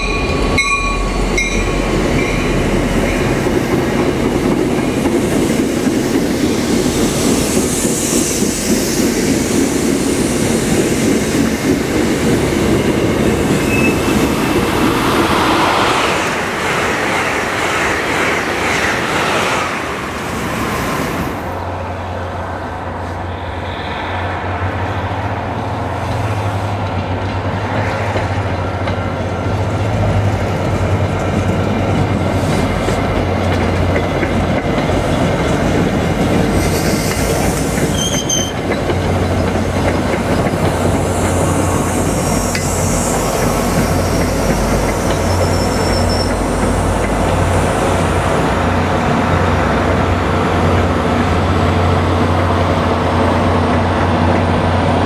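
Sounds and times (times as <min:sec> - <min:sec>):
diesel locomotive humming: 0:00.0 - 0:55.0
high-speed train rushing past: 0:00.0 - 0:55.0
train wheels rumbling and clacking: 0:00.0 - 0:55.0
train wheel squeal: 0:12.8 - 0:14.6, 0:23.3 - 0:25.1, 0:36.5 - 0:38.8, 0:41.1 - 0:46.8.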